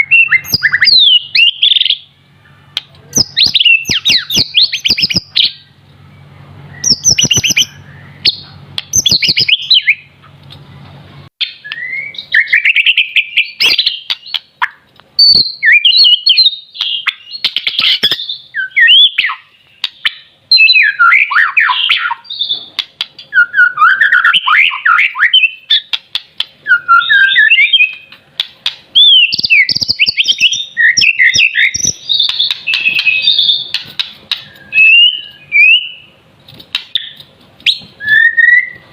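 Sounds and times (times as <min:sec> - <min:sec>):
songbird whistles and trills: 0:00.0 - 0:10.2, 0:11.4 - 0:38.9
sharp clicks: 0:22.8 - 0:23.3, 0:27.8 - 0:30.0, 0:31.8 - 0:34.6.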